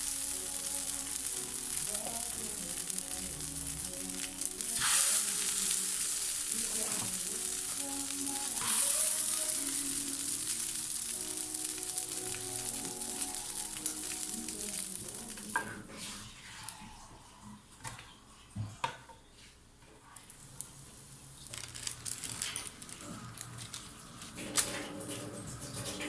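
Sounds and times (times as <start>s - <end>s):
food sizzling in a pan: 0.0s - 17.2s
soft background music: 0.0s - 18.3s, 21.2s - 26.0s.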